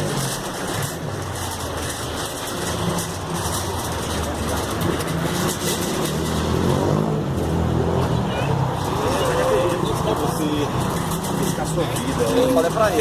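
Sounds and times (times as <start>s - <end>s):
faint voices: 8.0s - 13.0s.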